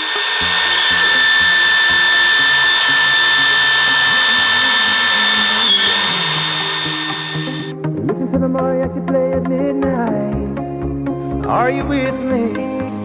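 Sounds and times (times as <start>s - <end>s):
trim router high whine: 0.0s - 7.8s
music: 0.0s - 13.0s.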